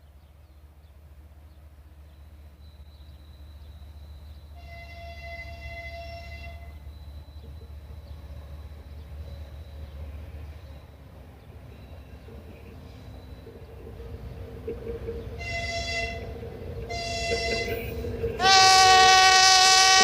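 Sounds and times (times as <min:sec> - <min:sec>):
train rumbling: 0:00.0 - 0:20.0
locomotive horn: 0:04.6 - 0:06.9, 0:15.4 - 0:20.0.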